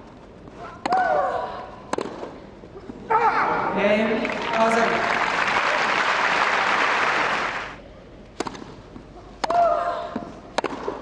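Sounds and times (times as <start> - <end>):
tennis ball impacts: 1.9 - 2.4, 8.3 - 11.0
crowd applause: 4.2 - 7.8.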